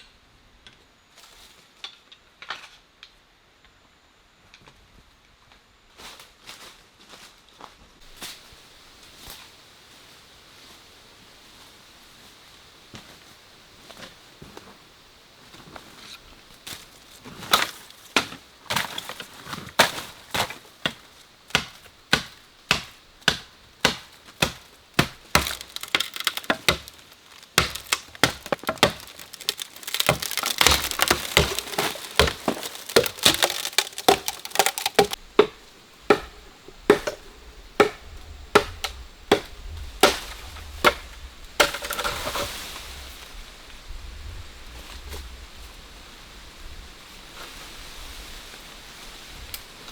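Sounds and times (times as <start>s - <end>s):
wood splintering and crackling: 17.5s - 42.9s
blade chopping into wood: 20.9s - 37.2s.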